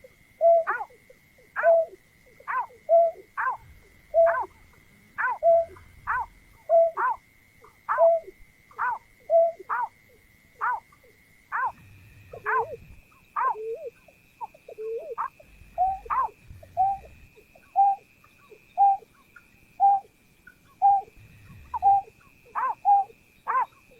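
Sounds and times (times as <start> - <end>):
bird hooting calls: 0.0 - 23.9
faint high whine: 0.0 - 23.9.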